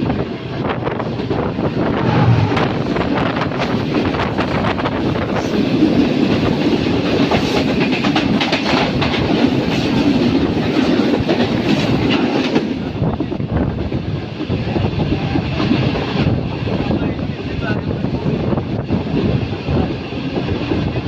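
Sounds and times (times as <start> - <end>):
train wheels clattering over rails: 0.0 - 16.3.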